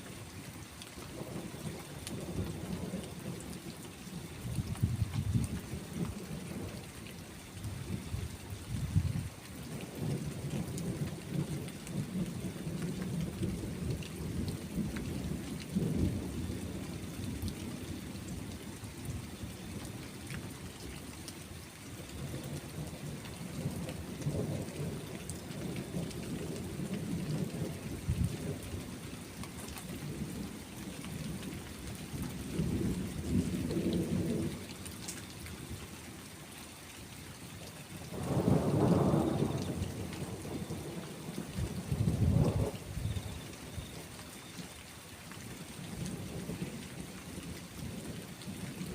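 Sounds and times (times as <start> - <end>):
steady rain hiss: 0.0 - 48.9
rolling thunder: 38.1 - 44.0.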